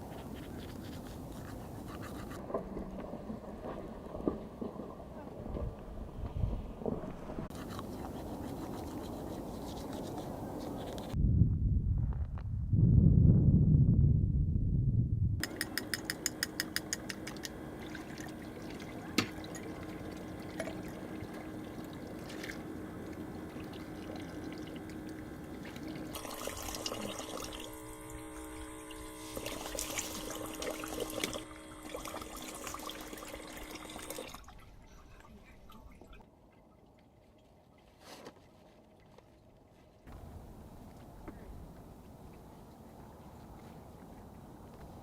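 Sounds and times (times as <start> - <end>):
liquid pouring and trickling: 17.7 - 27.9, 29.3 - 38.0.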